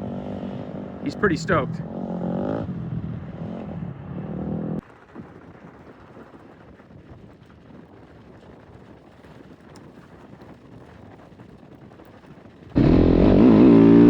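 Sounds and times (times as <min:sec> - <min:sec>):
dirt bike engine running: 0:12.8 - 0:14.0.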